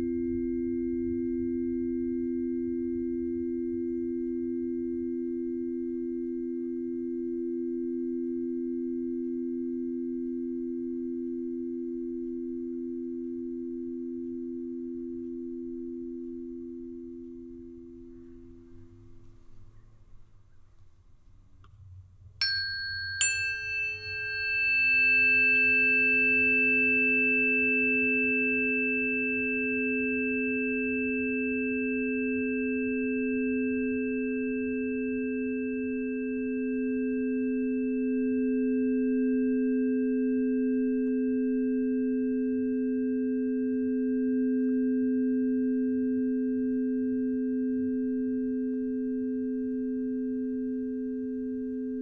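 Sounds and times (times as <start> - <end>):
low pure tuning fork tones: 0.0 - 20.6, 22.4 - 52.0
tuning fork clang: 22.4 - 32.4.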